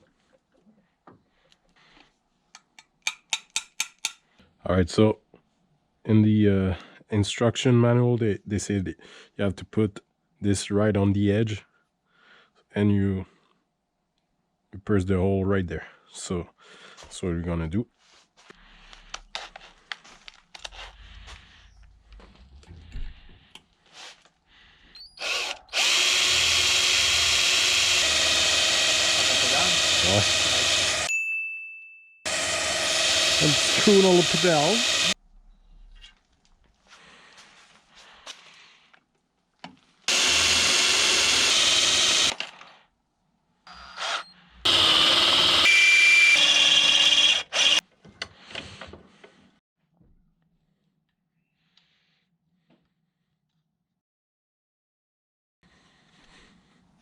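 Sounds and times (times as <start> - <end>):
power drill boring into metal: 25.2 - 31.1, 32.3 - 35.2, 40.1 - 42.4, 43.7 - 47.8.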